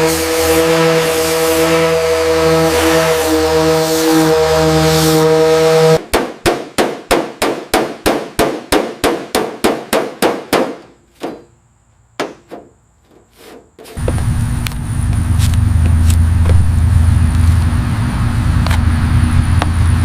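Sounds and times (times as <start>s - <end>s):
scattered knocks: 12.2s - 12.8s
low engine-like rumble: 14.0s - 20.0s.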